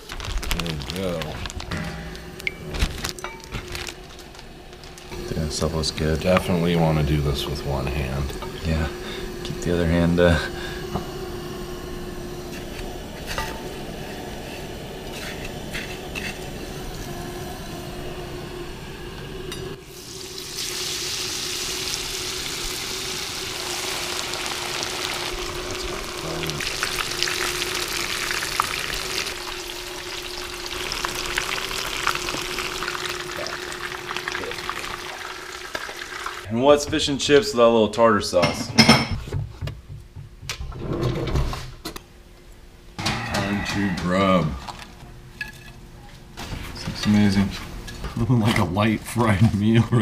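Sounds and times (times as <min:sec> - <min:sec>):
steady low hum: 0:00.0 - 0:20.6
food frying in hot oil: 0:19.8 - 0:36.5.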